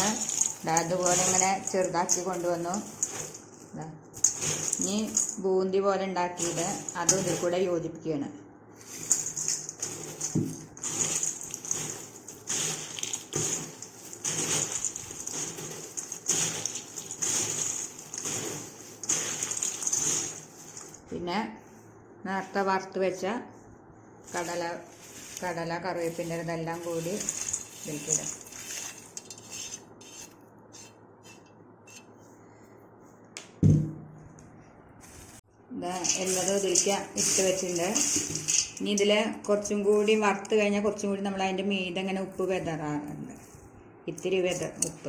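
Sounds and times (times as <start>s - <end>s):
crisp snacks rustling and crunching: 0.0s - 5.4s, 8.8s - 21.1s, 25.0s - 29.2s.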